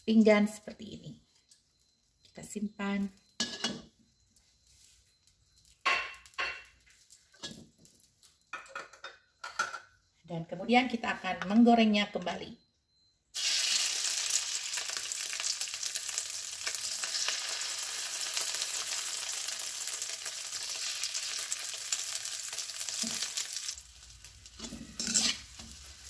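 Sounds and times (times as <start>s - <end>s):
egg batter sizzling in oil: 13.3s - 26.0s
metal spoon scraping wok: 24.4s - 26.0s.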